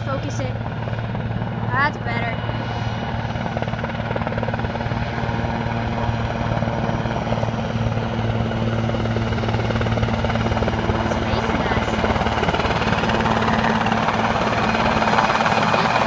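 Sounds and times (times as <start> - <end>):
helicopter engine drone: 0.0 - 16.0
helicopter rotor chopping: 0.0 - 16.0.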